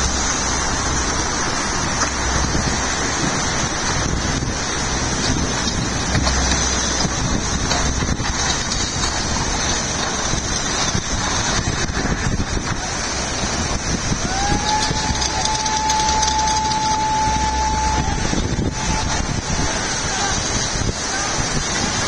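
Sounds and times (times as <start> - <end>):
water noise: 0.0 - 22.0
wind on microphone: 0.0 - 22.0
siren winding up: 14.4 - 19.2.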